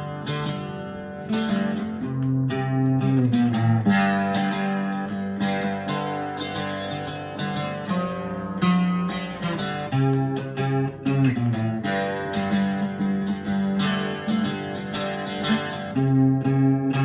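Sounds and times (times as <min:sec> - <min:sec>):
mandolin picking a melody: 0:00.0 - 0:17.0.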